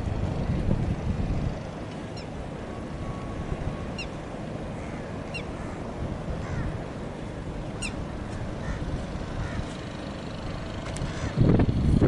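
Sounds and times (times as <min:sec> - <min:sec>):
low outdoor rumble: 0:00.0 - 0:12.0
high bird calls: 0:04.8 - 0:05.8.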